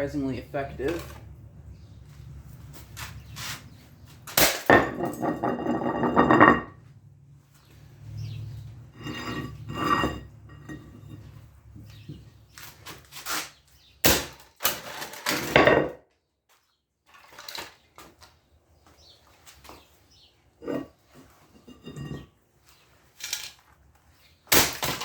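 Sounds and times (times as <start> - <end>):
humidifier being smashed: 4.4 - 5.2, 14.0 - 15.6, 24.5 - 25.0
pieces clattering: 4.4 - 6.7, 14.6 - 16.0, 24.5 - 25.0.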